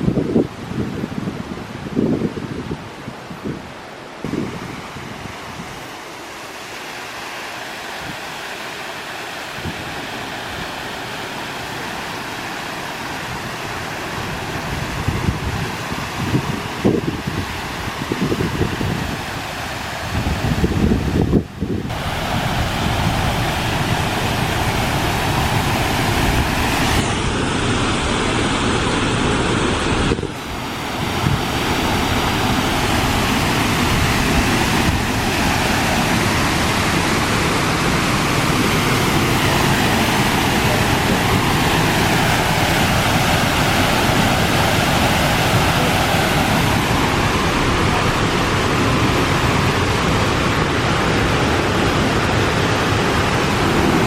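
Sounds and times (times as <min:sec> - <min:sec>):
waterfall splashing: 0:03.7 - 0:54.0.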